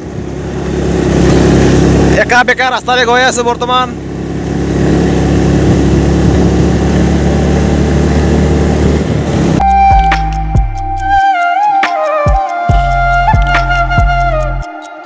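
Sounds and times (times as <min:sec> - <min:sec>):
road noise: 0:00.0 - 0:10.4
vehicle engine rumble: 0:00.0 - 0:11.1
flute music: 0:09.6 - 0:15.0.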